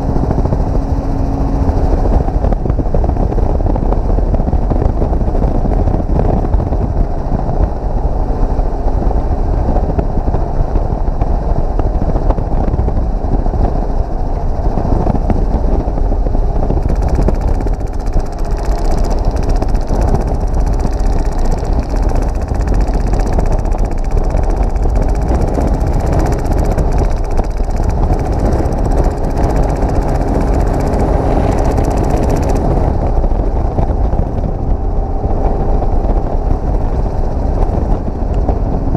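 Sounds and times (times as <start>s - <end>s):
helicopter rotor and engine drone: 0.0s - 38.9s
wind on microphone: 0.0s - 38.9s
airsoft gun full-auto bursts: 16.8s - 32.8s.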